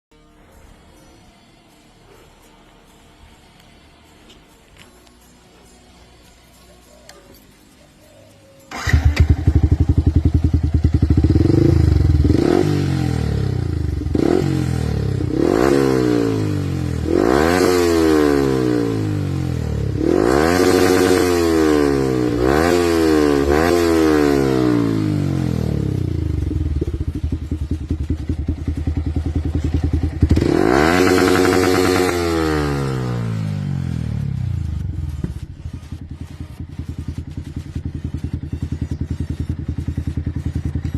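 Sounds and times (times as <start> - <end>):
motorcycle engine idling: 8.7 - 17.6, 22.2 - 40.9
motorcycle engine revving: 8.7 - 40.9.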